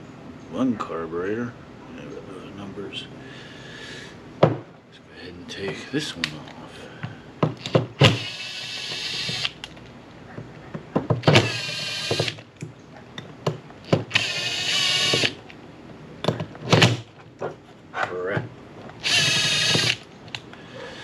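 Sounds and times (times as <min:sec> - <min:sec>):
power driver motor whining: 0:07.6 - 0:09.7, 0:11.2 - 0:12.4, 0:13.9 - 0:15.5, 0:19.0 - 0:20.1.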